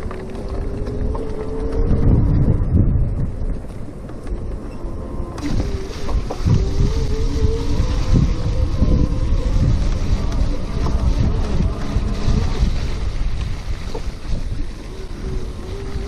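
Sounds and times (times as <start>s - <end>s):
bicycle tyre rumble: 0.0s - 16.0s
wind buffeting microphone: 0.0s - 16.0s
steady motor whine: 4.1s - 16.0s.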